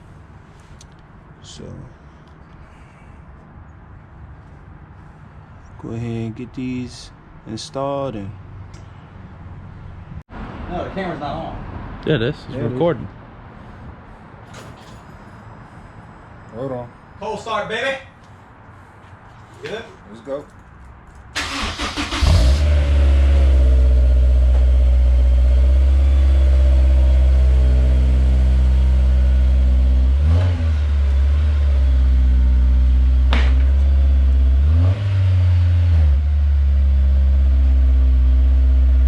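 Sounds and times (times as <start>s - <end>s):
car engine idling: 21.1s - 34.7s.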